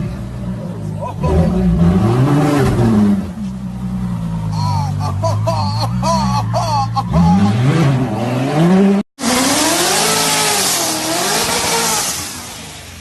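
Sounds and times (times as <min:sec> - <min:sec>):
sports car engine revving: 0:01.2 - 0:04.6, 0:07.1 - 0:13.0
car engine with loud hiss: 0:09.2 - 0:13.0.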